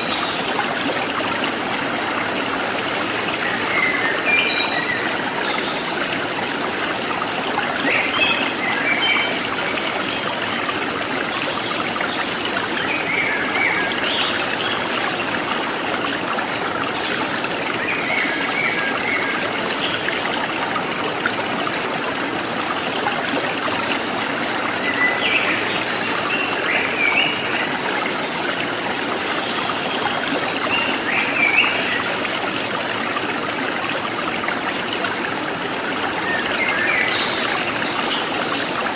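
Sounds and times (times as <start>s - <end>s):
stream trickling and splashing: 0.0s - 38.9s.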